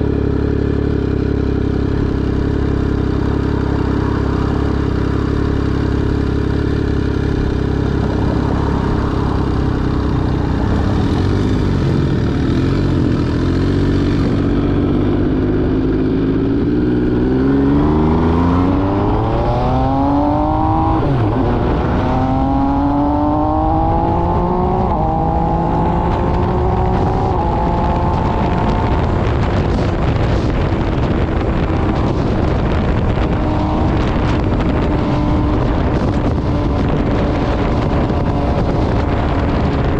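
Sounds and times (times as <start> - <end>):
motorcycle engine revving and shifting: 0.0 - 39.9
wind rushing over microphone: 0.0 - 39.9.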